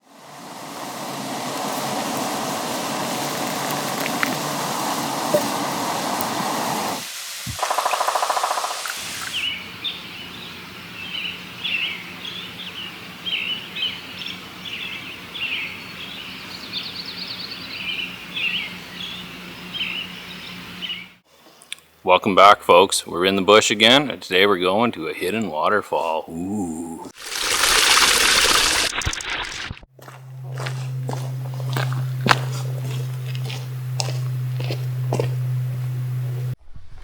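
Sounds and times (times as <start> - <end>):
steady rushing noise: 0.0 - 7.2
small birds chirping: 7.5 - 21.2.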